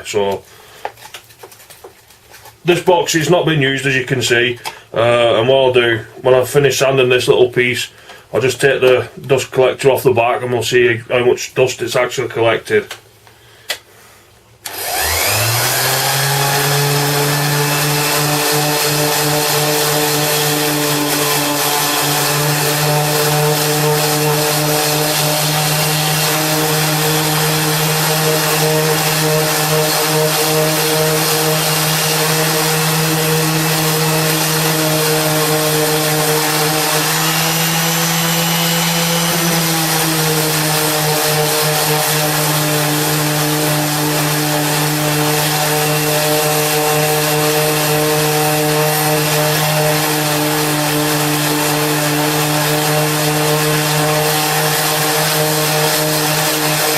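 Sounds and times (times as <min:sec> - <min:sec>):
orbital sander motor hum: 0:14.7 - 0:56.9.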